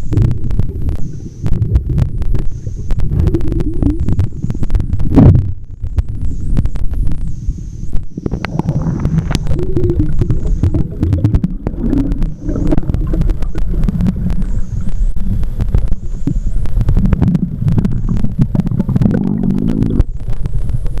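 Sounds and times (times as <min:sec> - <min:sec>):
sharp clicks and crackles: 0:00.0 - 0:21.0
water rumbling against housing: 0:08.1 - 0:20.4.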